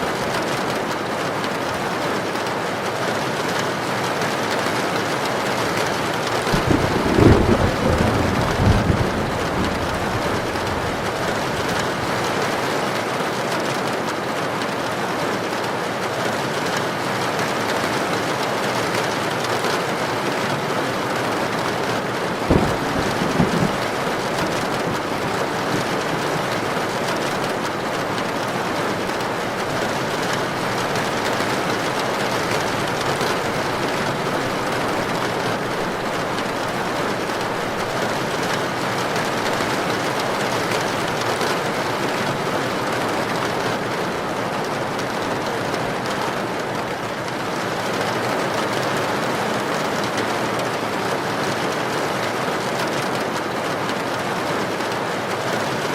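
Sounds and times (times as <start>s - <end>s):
heavy rain: 0.0s - 55.9s
thunder crack and rumble: 6.3s - 12.6s, 21.6s - 42.2s.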